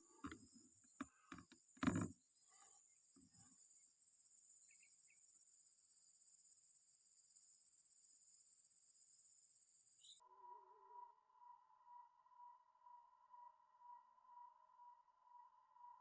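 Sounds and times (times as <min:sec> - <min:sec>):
insects trilling: 0:00.0 - 0:10.6.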